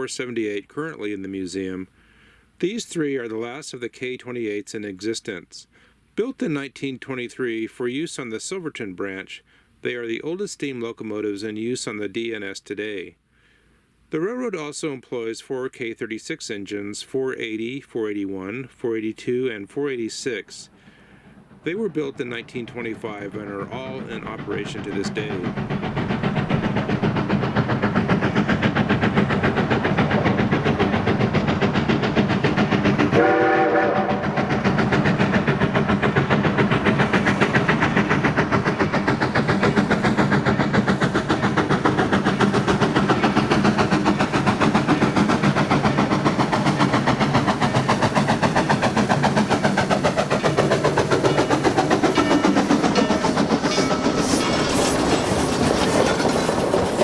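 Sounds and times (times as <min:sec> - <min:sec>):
steam locomotive exhaust beating: 0:18.2 - 0:57.0
steam whistle blast: 0:33.1 - 0:34.4
metallic clatter: 0:47.8 - 0:57.0.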